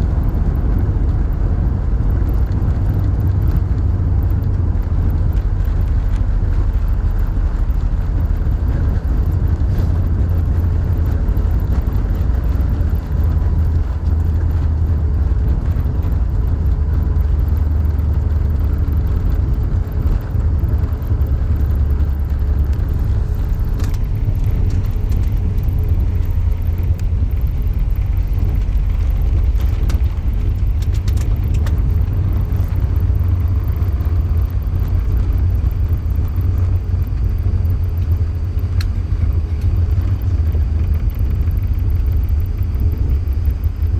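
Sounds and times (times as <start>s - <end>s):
aircraft cabin rumble: 0.0s - 43.9s
faint steady whine: 0.0s - 43.9s
light ticks: 0.1s - 43.9s.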